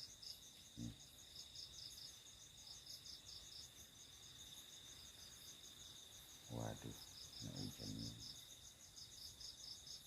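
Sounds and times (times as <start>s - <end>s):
crickets chirping rhythmically: 0.0s - 10.0s
insects trilling: 0.0s - 10.0s.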